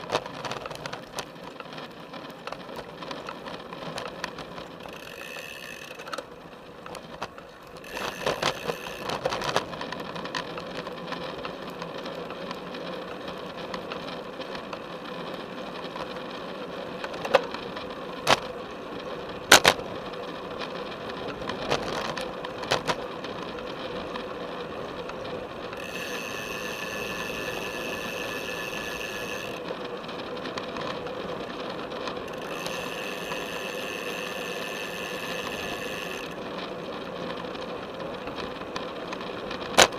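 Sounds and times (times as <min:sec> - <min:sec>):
bicycle tyre and frame noise: 0:00.0 - 0:39.9
bicycle knocking over bumps: 0:06.9 - 0:12.7.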